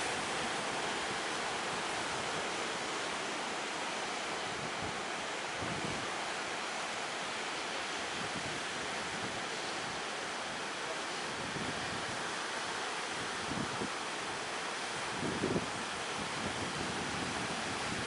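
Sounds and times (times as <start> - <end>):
ocean surf washing: 0.0 - 18.0
wind buffeting microphone: 15.0 - 18.0.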